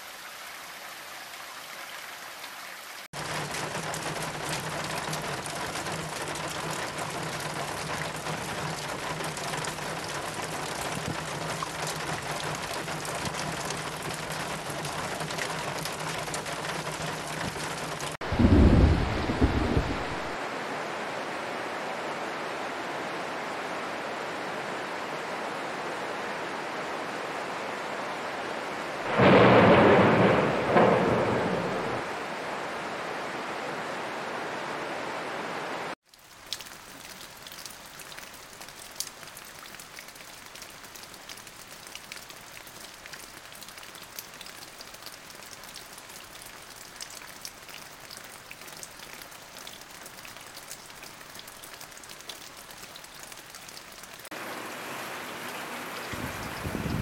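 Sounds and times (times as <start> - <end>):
rain on leaves: 0.0 - 57.0
heavy rain: 2.9 - 57.0
thunderclap rumbling: 18.2 - 20.4, 29.1 - 32.1, 56.1 - 57.0.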